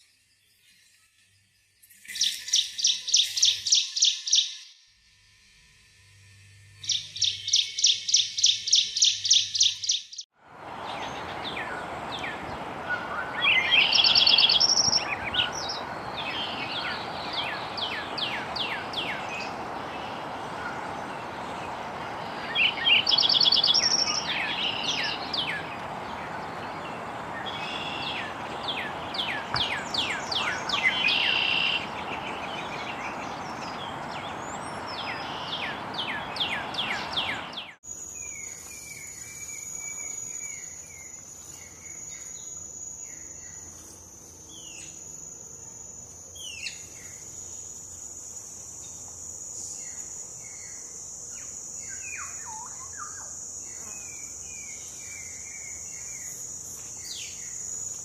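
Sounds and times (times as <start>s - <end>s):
bird chirping song: 0.0s - 4.7s, 6.7s - 43.8s, 49.6s - 58.0s
steady outdoor hiss: 0.0s - 58.0s
bird rapid trill: 1.9s - 4.6s, 6.8s - 10.2s, 13.0s - 37.6s.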